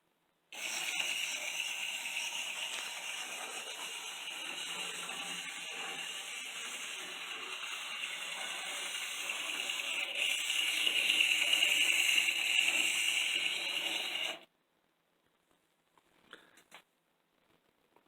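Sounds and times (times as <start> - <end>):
model train motor whirring: 0.6 - 14.5.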